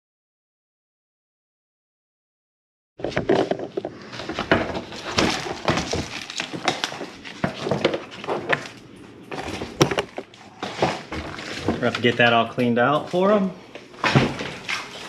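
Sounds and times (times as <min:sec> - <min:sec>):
plastic and metal parts clattering: 0:03.0 - 0:08.7, 0:09.3 - 0:12.3.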